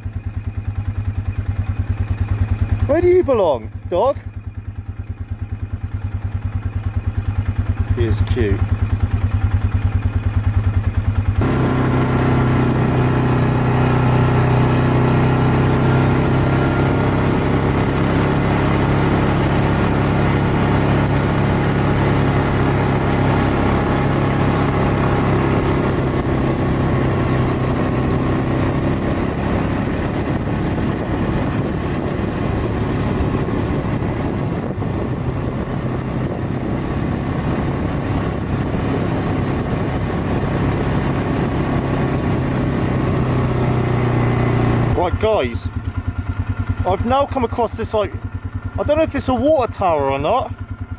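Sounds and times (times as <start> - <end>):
quad bike engine running: 0.0 - 50.9.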